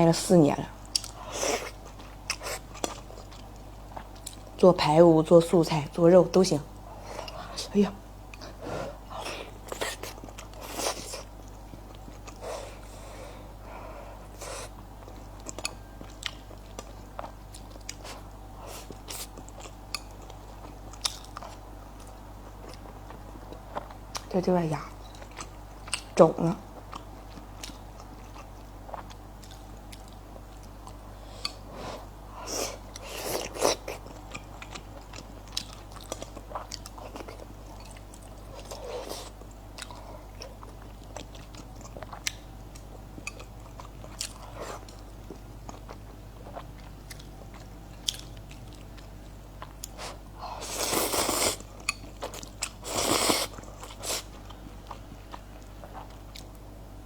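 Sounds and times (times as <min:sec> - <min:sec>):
close chewing and biting food: 0:32.7 - 0:56.6.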